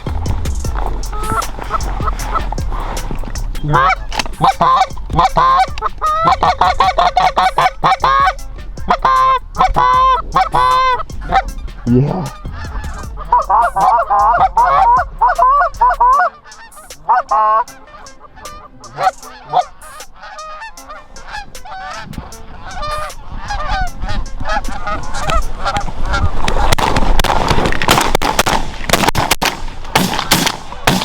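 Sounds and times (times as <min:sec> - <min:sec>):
geese honking: 0:00.0 - 0:27.5
shotgun blasts: 0:26.8 - 0:31.0.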